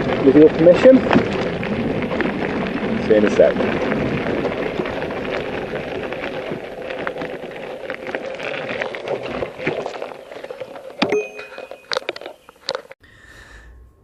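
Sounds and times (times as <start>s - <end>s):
wind rushing over microphone: 0.0s - 9.4s
bike clicks and rattles: 0.0s - 13.0s.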